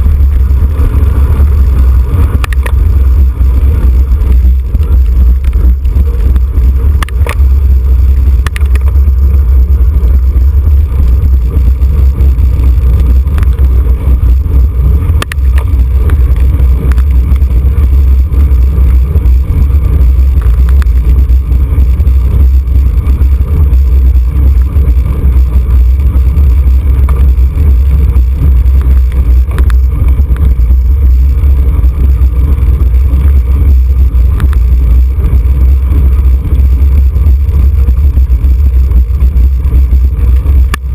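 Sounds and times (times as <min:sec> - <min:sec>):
wind buffeting microphone: 0:00.0 - 0:40.9
faint clicks: 0:08.4 - 0:09.0.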